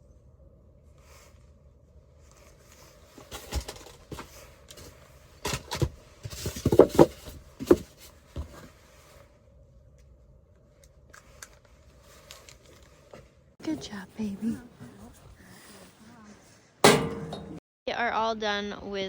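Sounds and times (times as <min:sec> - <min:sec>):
low steady hum: 0:00.0 - 0:19.0
sharp knocks and rattles: 0:03.2 - 0:08.6, 0:16.8 - 0:17.6.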